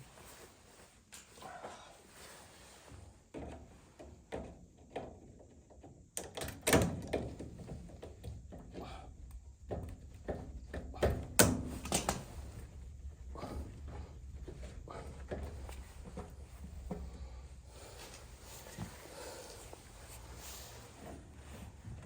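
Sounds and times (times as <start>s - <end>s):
knocks and clunks of parts handled: 3.3s - 12.6s.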